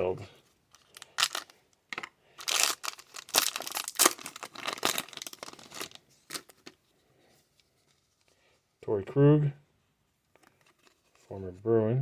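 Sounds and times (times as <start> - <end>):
foil wrapper crinkling and tearing: 0.8 - 1.6, 2.4 - 6.7.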